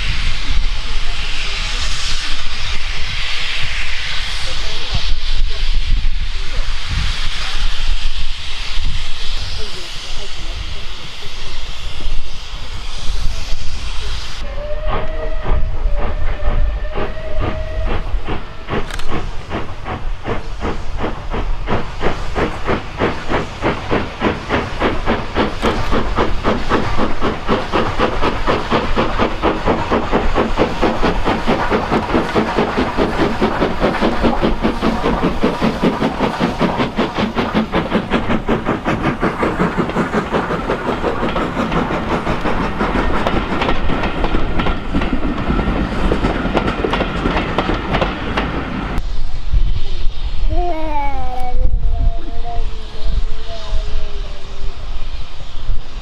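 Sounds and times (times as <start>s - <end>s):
steam hissing: 0.0s - 56.0s
steam locomotive whistle: 14.4s - 18.8s.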